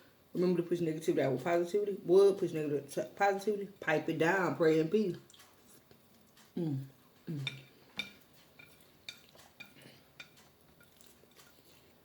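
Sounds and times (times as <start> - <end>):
utensil clinking against a plate: 7.4 - 11.6.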